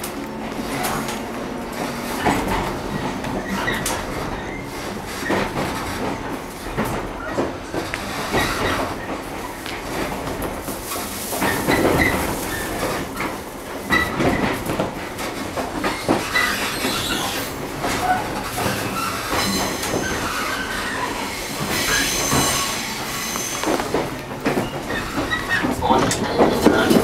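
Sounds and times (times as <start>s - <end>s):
wheel on rail noise: 0.0s - 27.0s
wheels squealing: 15.9s - 27.0s.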